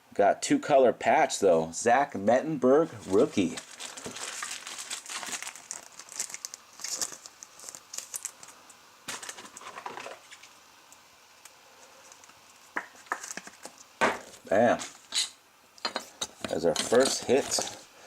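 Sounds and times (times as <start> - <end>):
cards and plastic wrappers rustling: 2.9 - 10.6, 16.5 - 17.9.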